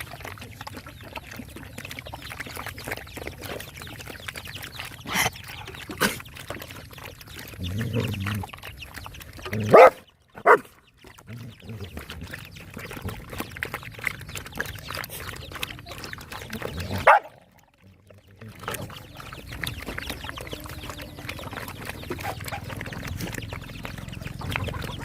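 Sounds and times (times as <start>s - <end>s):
dogs chewing wetly: 0.0s - 25.0s
dog grunting: 7.6s - 8.5s.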